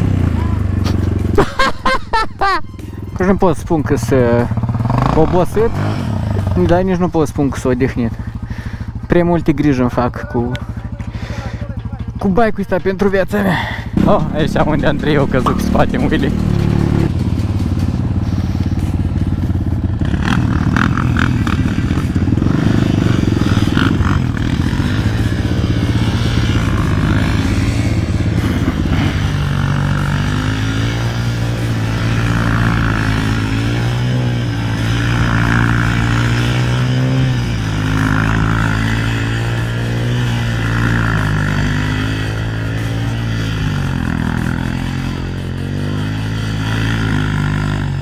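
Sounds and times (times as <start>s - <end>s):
motorcycle engine running: 0.0s - 48.0s
rattling clatter: 14.0s - 18.2s.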